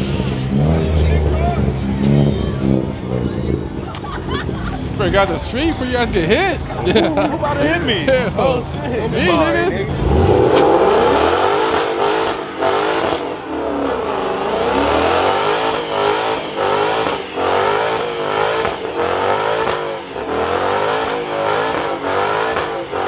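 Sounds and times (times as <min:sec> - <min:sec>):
car engine revving hard: 0:00.0 - 0:03.8, 0:09.0 - 0:23.0.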